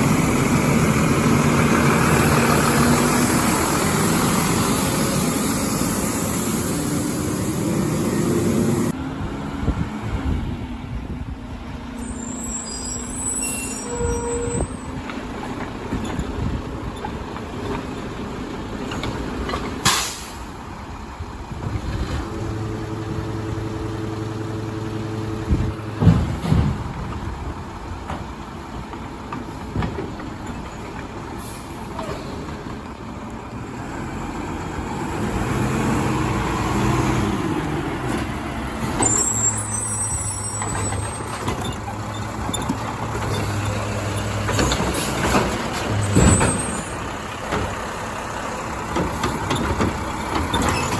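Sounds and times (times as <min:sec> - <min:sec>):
diesel engine running: 0:00.0 - 0:12.5
air brake hiss: 0:19.8 - 0:20.5
loud knocks: 0:25.9 - 0:27.3.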